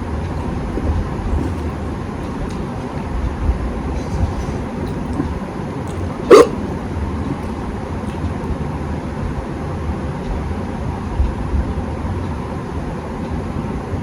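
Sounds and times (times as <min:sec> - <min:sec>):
dog barking: 0:06.0 - 0:06.8.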